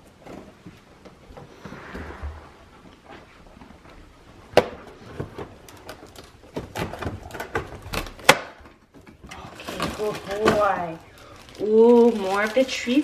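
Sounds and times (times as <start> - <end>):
packaging clicks and crinkling: 5.0 - 13.0.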